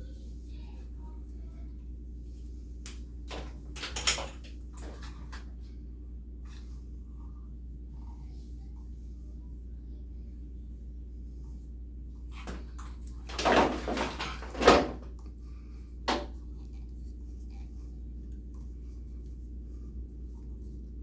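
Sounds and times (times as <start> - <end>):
steady low hum: 0.0 - 21.0
plumbing parts rustling and knocking: 3.3 - 5.5, 12.4 - 15.2.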